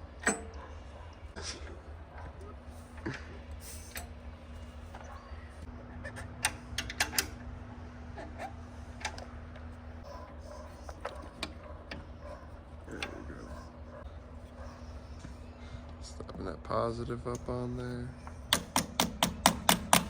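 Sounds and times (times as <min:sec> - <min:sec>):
steady low hum: 0:00.0 - 0:20.0
metal tool clicks and taps: 0:18.2 - 0:20.0.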